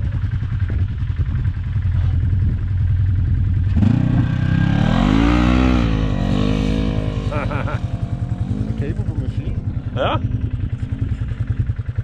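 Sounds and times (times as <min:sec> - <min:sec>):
off-road vehicle engine revving: 0:03.6 - 0:12.0.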